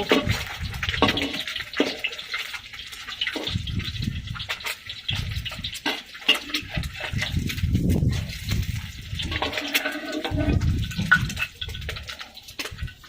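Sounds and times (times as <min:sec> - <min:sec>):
oil sizzling in a pan: 0:00.0 - 0:13.0.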